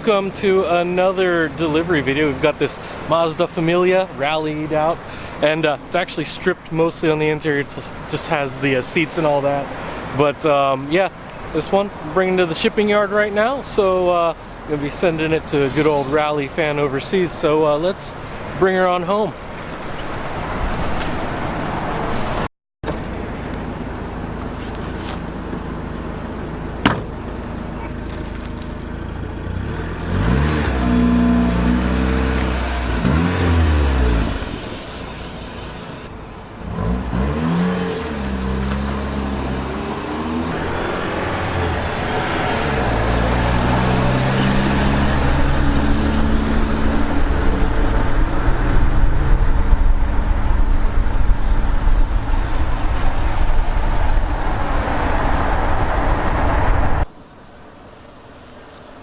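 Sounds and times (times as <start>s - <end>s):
road and wind noise: 0.0s - 59.0s
car engine accelerating: 29.0s - 57.1s.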